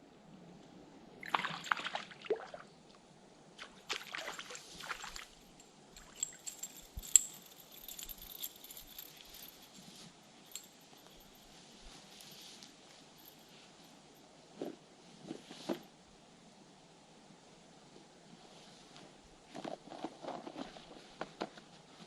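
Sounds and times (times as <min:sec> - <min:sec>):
water sloshing and splashing: 0:01.2 - 0:02.7, 0:03.6 - 0:05.4.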